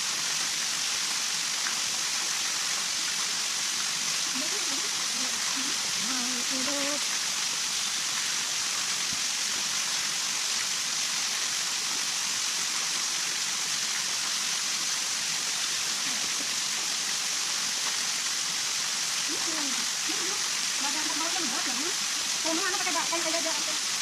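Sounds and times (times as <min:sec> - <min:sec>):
water hissing: 0:02.8 - 0:10.8, 0:13.3 - 0:24.0.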